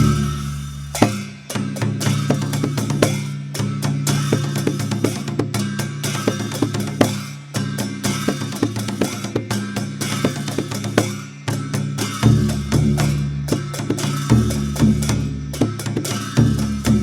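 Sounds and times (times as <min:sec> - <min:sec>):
barrel drum strikes: 0:00.0 - 0:03.3, 0:10.2 - 0:17.0.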